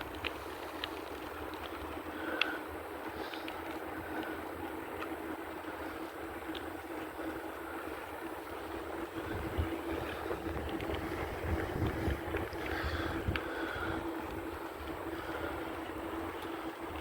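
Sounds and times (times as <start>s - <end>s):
light bicycle clicks: 0.0s - 17.0s
steady low hum: 0.0s - 17.0s
wind buffeting microphone: 8.6s - 17.0s.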